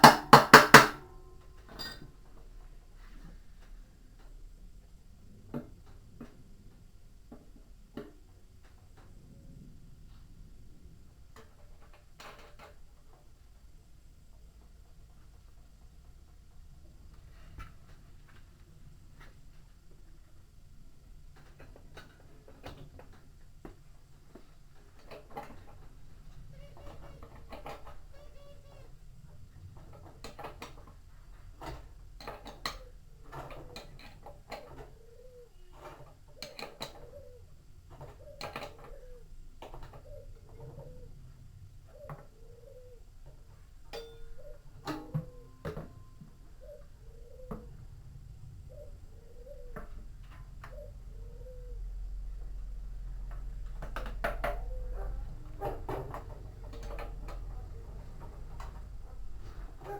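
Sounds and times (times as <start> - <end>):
knocks and clatter of machine parts: 0.0 - 2.6
metal parts knocking and clinking: 1.6 - 2.2
short squeaks: 26.3 - 29.1
pigeon cooing: 26.4 - 29.0, 31.7 - 59.9
low steady rumble: 46.0 - 59.9.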